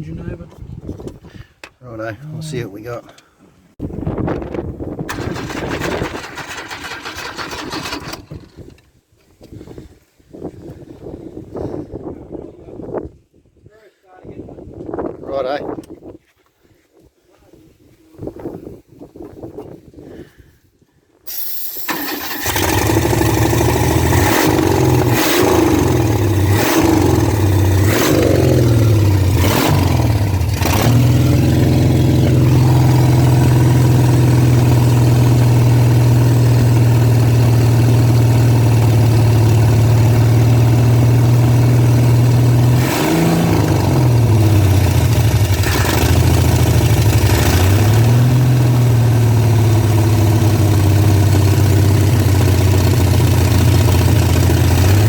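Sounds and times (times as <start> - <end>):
car engine revving and idling: 22.4 - 55.0.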